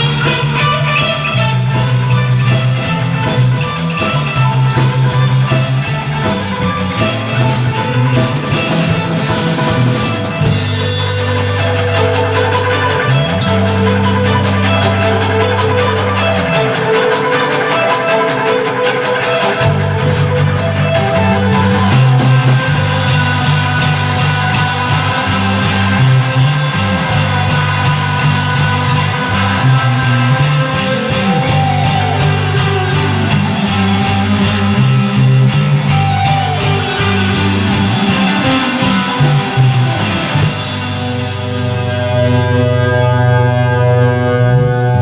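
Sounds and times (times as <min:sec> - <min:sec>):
drums with cymbals: 0:00.0 - 0:16.4, 0:19.2 - 0:42.2
bass guitar: 0:00.0 - 0:45.0
electric guitar: 0:00.0 - 0:45.0.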